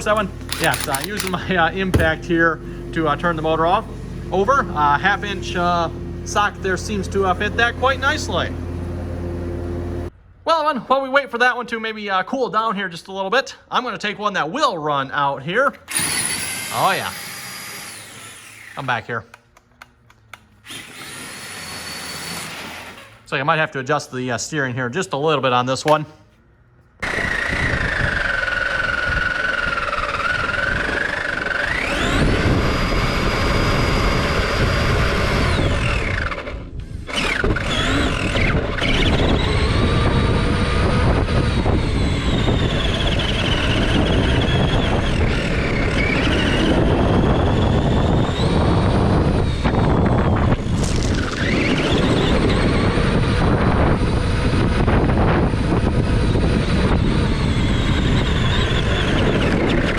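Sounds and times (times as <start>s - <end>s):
remote control car motor whining: 0.1s - 2.2s, 15.9s - 19.0s, 20.6s - 23.3s, 27.0s - 59.9s.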